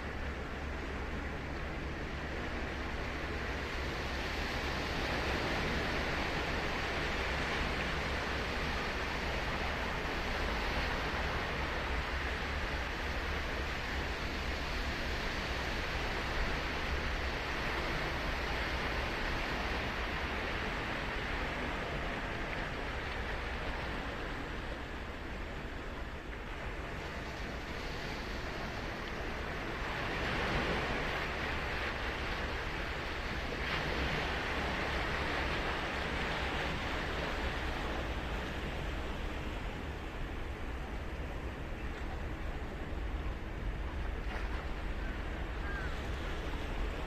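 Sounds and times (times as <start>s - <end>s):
waves breaking on beach: 0.0s - 47.0s.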